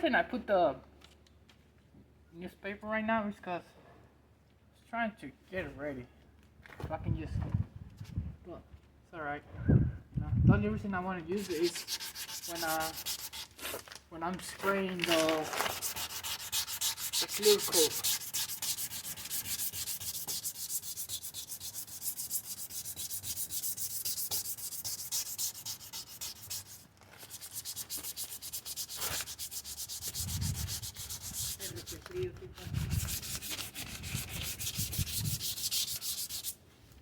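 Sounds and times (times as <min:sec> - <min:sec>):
sandpaper rubbing on plastic: 0:11.3 - 0:36.6.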